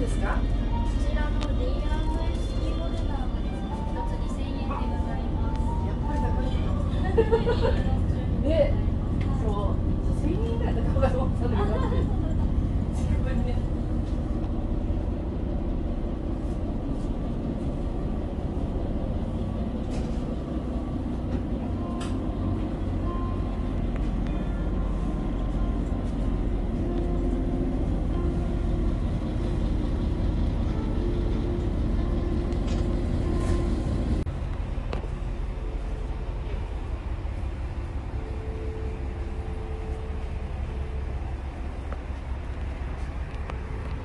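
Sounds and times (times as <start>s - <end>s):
railcar engine and wheels rumbling: 0.0s - 44.0s
humming note: 18.6s - 44.0s.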